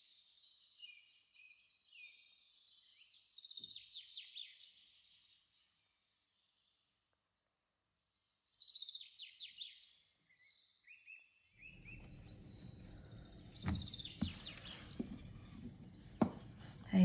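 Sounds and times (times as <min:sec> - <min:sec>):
faint bird chirping: 0:00.0 - 0:17.0
rolling pin knocking on counter: 0:13.5 - 0:16.9.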